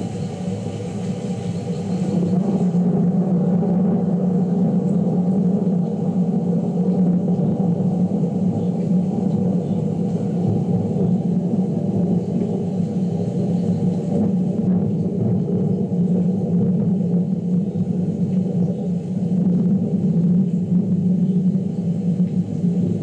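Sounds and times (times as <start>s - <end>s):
thunder rumbling: 0.0s - 23.0s.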